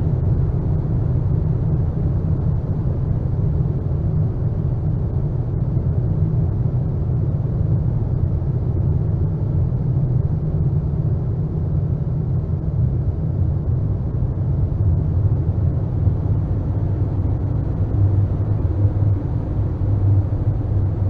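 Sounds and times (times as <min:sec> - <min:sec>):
low rumbling noise drone: 0:00.0 - 0:21.0.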